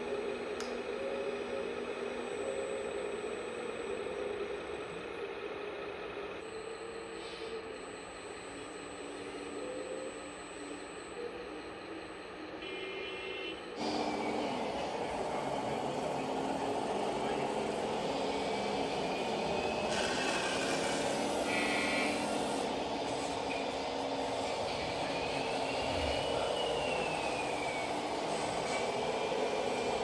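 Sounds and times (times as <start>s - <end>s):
model truck running noise: 13.7s - 30.0s.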